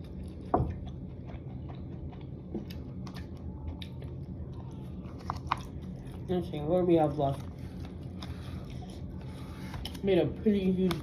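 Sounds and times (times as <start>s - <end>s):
quiet chewing: 0.0s - 6.3s
steady low hum: 0.0s - 11.0s.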